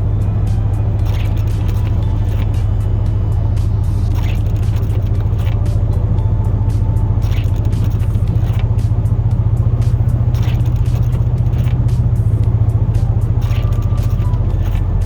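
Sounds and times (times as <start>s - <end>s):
truck engine droning: 0.0s - 15.0s.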